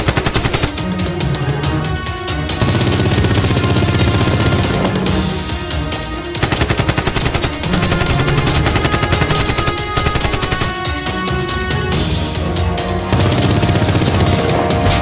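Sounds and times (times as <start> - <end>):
automatic gunfire bursts: 0.0 - 0.8, 2.6 - 4.8, 6.4 - 10.8, 13.2 - 14.7
driving action music: 0.0 - 15.0.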